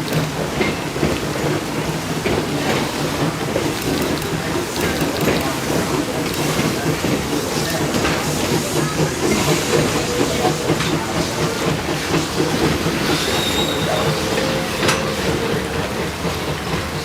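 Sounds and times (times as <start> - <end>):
train cars rattling: 0.0 - 17.0
wheels clicking over rail joints: 0.0 - 17.0
thin wheel squeal: 13.0 - 15.6.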